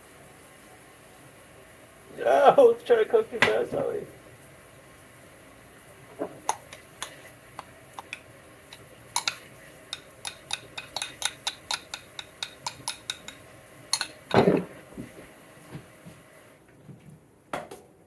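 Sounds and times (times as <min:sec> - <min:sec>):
utensil tapping kitchenware: 0:06.4 - 0:14.4.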